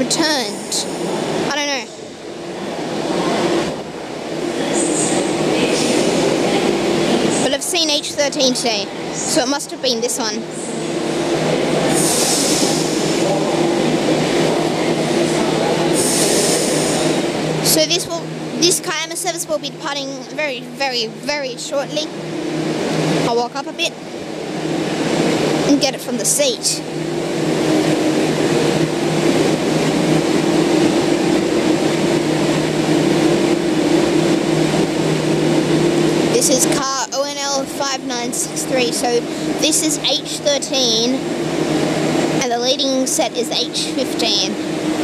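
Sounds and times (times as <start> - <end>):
train equipment humming: 0.0 - 45.0
air hissing: 11.8 - 13.3, 15.9 - 17.2.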